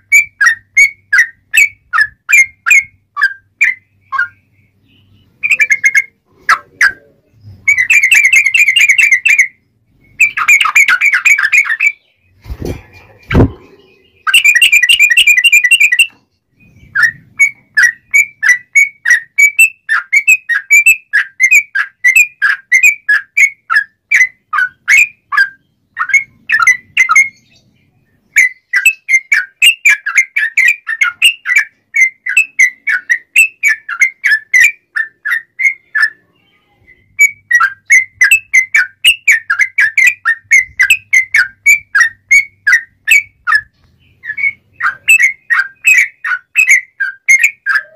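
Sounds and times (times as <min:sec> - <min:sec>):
bird trilled phrases: 0:04.1 - 0:09.5, 0:32.3 - 0:38.6, 0:44.2 - 0:47.9
brief low thump: 0:12.5 - 0:13.8.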